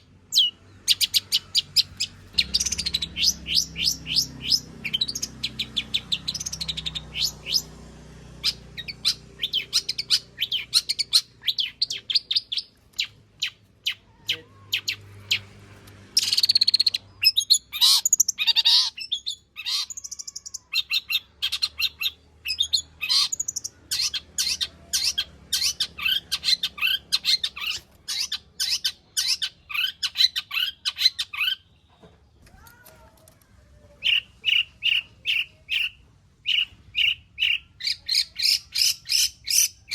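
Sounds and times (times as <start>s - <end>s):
bird singing rapid chirps and trills: 0.0s - 32.7s, 34.0s - 39.9s
harsh scratchy bird call: 0.3s - 31.7s.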